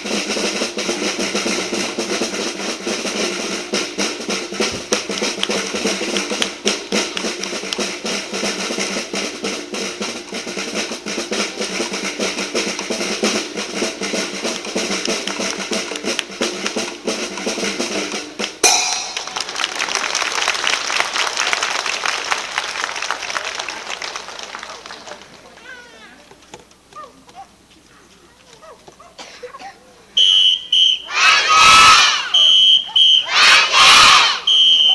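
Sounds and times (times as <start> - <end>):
marching band playing: 0.0 - 21.2, 30.2 - 34.9
cymbal crash: 18.6 - 19.7
applause: 19.2 - 26.0.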